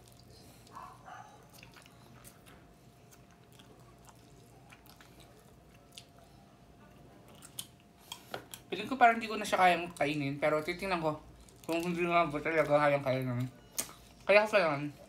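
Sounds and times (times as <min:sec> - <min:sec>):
chewing and biting chicken: 0:00.0 - 0:06.4.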